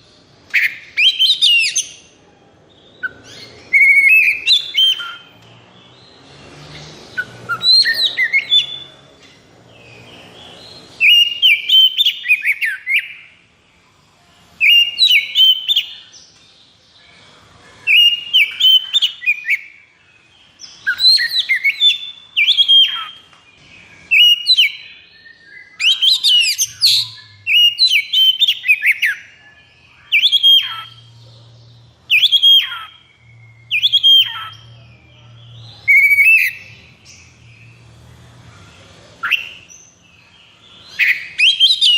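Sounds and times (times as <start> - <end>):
bird singing whistled chattering notes: 3.0 - 6.0, 6.7 - 9.1, 9.7 - 13.3, 14.6 - 16.1, 17.9 - 19.8, 20.5 - 31.2, 32.0 - 37.8.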